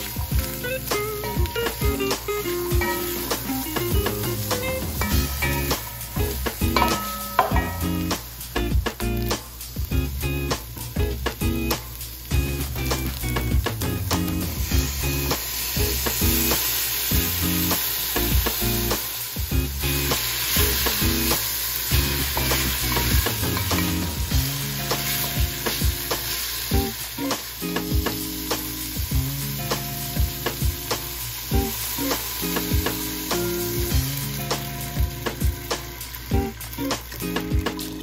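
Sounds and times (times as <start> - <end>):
background music: 0.0 - 38.0
food sizzling in a pot: 0.0 - 38.0
wooden spatula knocking on pot: 6.8 - 7.8.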